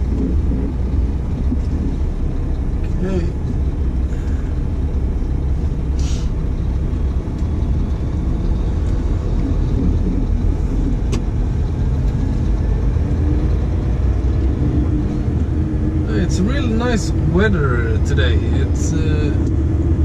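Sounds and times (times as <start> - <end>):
diesel truck engine rumbling: 0.0 - 20.0
short hiss: 6.0 - 6.4.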